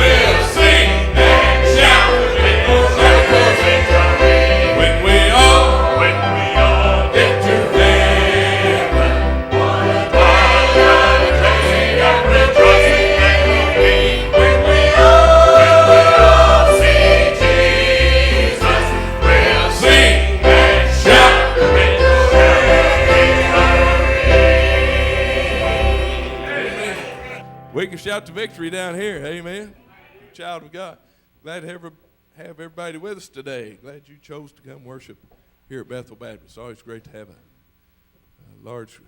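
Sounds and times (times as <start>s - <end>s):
bass line: 0.0s - 27.0s
group singing a hymn: 0.0s - 27.7s
instrumental accompaniment: 0.0s - 29.4s.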